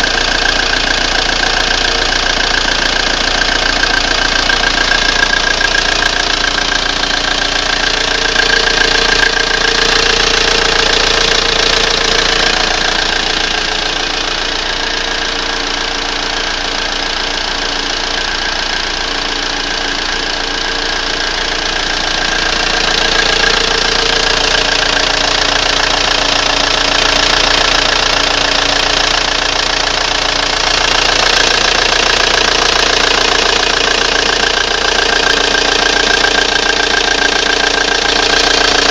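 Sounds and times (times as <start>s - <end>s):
diesel engine running: 0.0s - 38.9s
strange engine noise: 0.0s - 38.9s.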